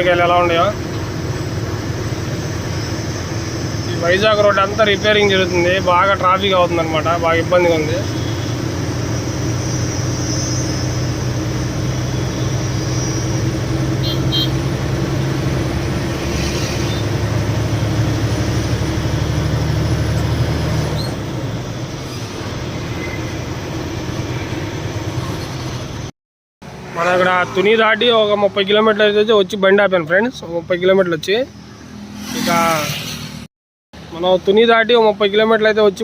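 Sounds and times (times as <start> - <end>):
lorry engine drone: 0.0 - 28.1
road and tyre noise: 0.0 - 36.0.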